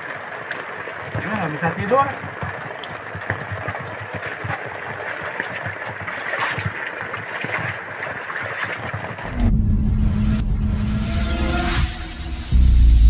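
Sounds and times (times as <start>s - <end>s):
heavy rain on a tent: 0.0s - 6.9s
loud music with deep rumble: 9.3s - 13.0s.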